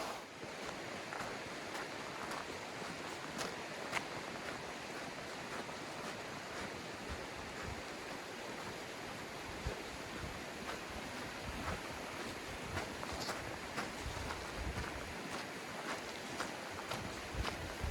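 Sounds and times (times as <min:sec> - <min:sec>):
footsteps crunching on stones: 0:12.8 - 0:17.9.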